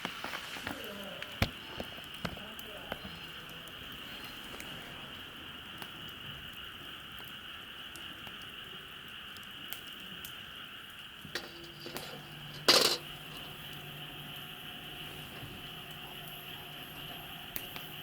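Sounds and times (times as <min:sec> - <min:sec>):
campfire hissing and crackling: 0:00.0 - 0:18.0.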